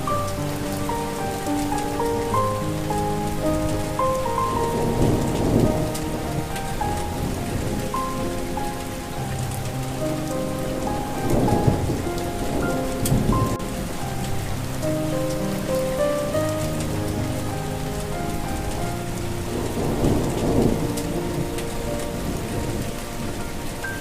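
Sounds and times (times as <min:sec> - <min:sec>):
slow gentle melody: 0:00.0 - 0:24.0
steady rain: 0:00.0 - 0:24.0
thunder: 0:04.3 - 0:08.2, 0:19.4 - 0:24.0.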